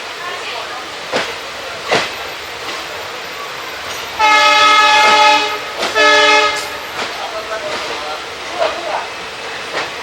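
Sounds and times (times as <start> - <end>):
moving train running noise: 0.0 - 10.0
train horn blasts: 4.2 - 6.9.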